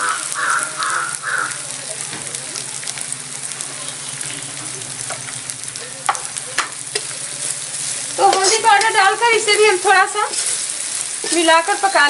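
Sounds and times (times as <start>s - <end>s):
masala sizzling in hot oil: 0.0s - 12.0s.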